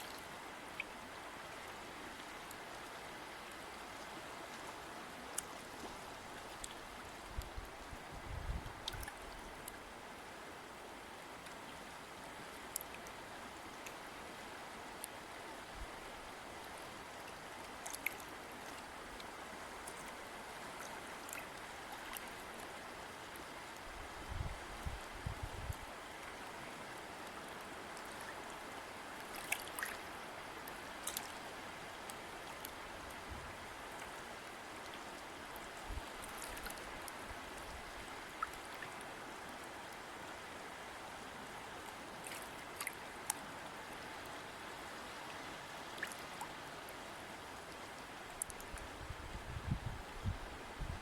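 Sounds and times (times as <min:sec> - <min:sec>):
river water rushing: 0:00.0 - 0:25.2, 0:25.8 - 0:50.8
drips and splashes: 0:08.8 - 0:09.8, 0:17.3 - 0:22.8, 0:29.2 - 0:30.1, 0:30.7 - 0:31.5, 0:34.8 - 0:39.0, 0:42.2 - 0:43.5, 0:45.8 - 0:46.6.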